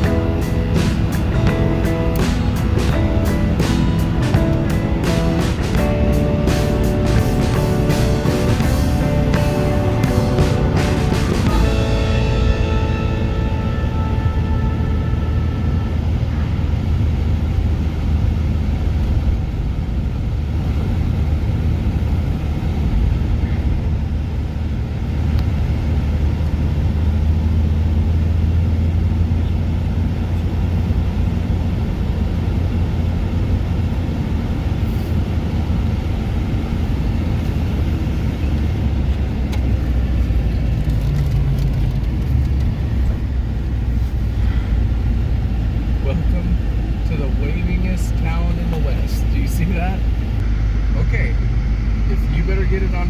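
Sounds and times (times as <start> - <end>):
car engine drone: 0.0 - 53.0
road noise: 0.0 - 53.0.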